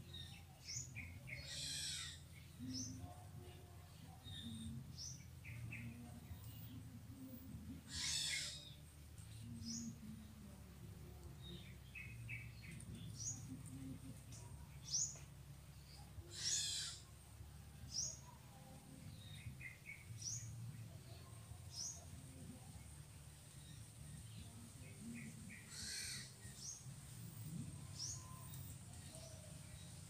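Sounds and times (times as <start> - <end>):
birds chirping: 0.0 - 17.1, 17.9 - 30.0.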